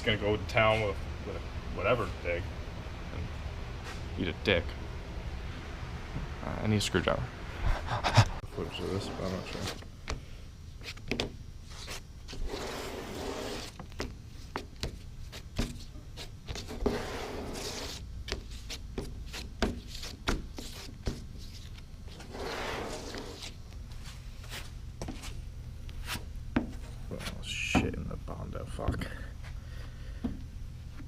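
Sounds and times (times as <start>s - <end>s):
spreader scraping filler: 11.7s - 13.8s, 16.2s - 18.0s, 22.1s - 23.6s.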